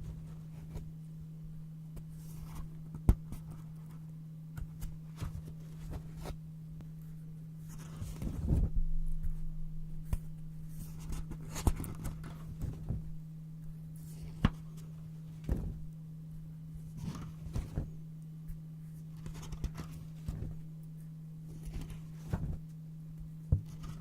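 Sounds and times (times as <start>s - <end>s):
paper crinkling and rustling: 7.6s - 9.4s, 10.1s - 13.1s, 16.8s - 18.0s, 19.1s - 20.7s, 21.5s - 22.7s, 23.5s - 24.0s.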